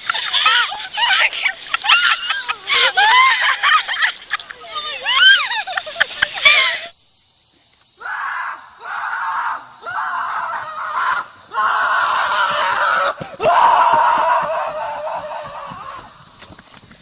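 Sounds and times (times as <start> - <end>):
loud screams: 0.2 - 4.0, 4.7 - 5.6, 8.0 - 16.2.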